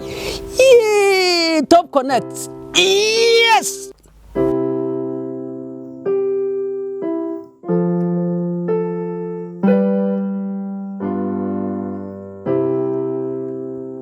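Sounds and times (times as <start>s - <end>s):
electric piano slow chords: 0.0s - 0.6s, 4.0s - 14.0s.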